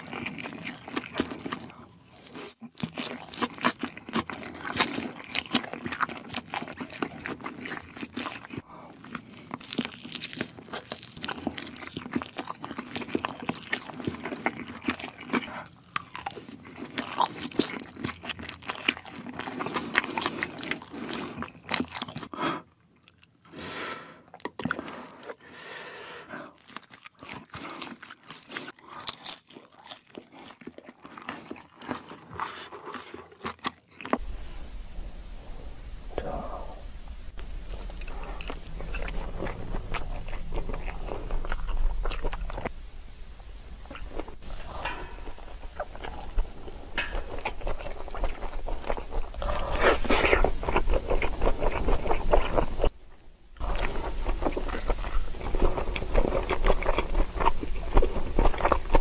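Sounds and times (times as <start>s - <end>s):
crunchy chewing: 0.0s - 23.5s, 26.5s - 34.4s, 36.2s - 59.0s.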